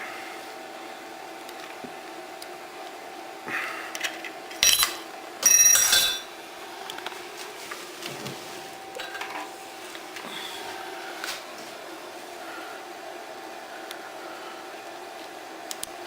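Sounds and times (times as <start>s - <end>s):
metal parts clattering: 4.5s - 6.3s.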